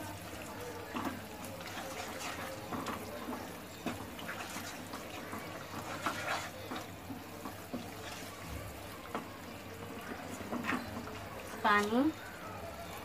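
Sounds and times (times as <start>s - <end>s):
paste sizzling in oil: 0.0s - 12.2s
wooden spatula scraping pan: 3.9s - 6.8s.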